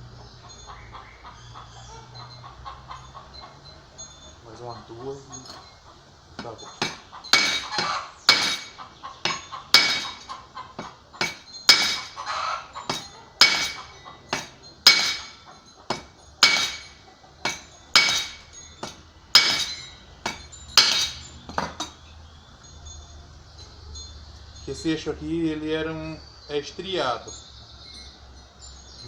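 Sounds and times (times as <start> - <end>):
hammer striking metal shaft: 6.4 - 22.0.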